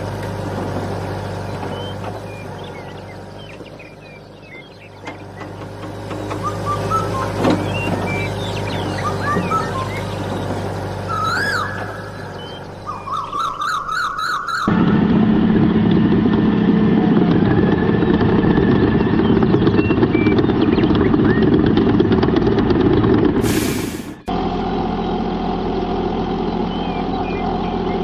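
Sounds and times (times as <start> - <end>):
rough engine-like drone: 0.0 - 28.0
warbling siren-like tone: 11.1 - 14.9.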